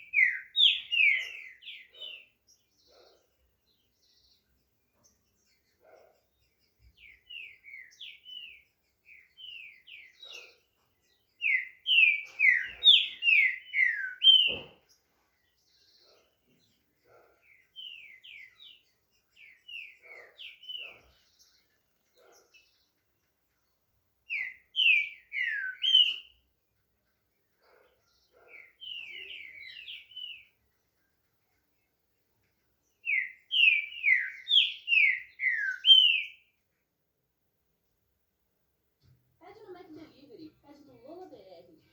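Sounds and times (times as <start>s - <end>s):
bird singing whistled notes: 0.0s - 2.3s, 11.4s - 14.8s, 24.3s - 26.4s, 28.4s - 30.6s, 33.0s - 36.5s.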